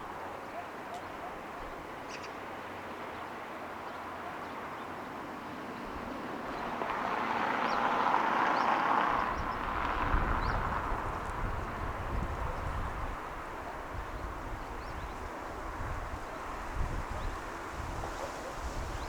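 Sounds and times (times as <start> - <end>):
city traffic hum: 0.0 - 19.0
vehicle passing: 6.0 - 12.4.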